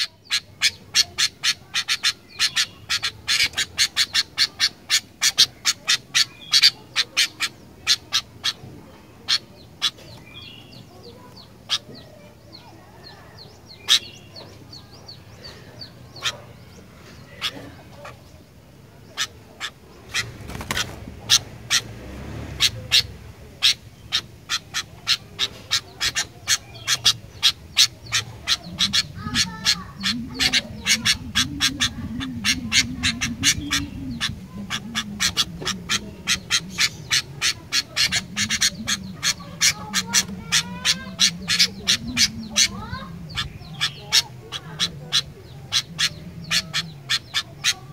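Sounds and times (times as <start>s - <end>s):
bird calling sharp chips: 19.1s - 21.9s.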